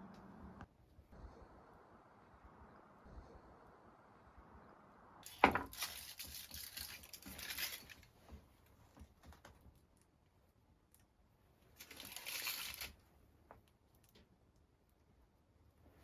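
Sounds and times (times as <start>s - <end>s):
close rustling and scraping: 5.2s - 9.8s, 11.7s - 13.1s.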